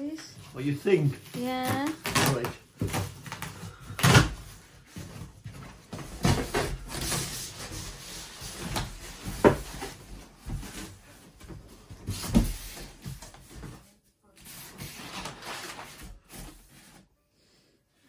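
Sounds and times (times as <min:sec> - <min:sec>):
knocks and thumps in cardboard box: 0:01.4 - 0:13.9.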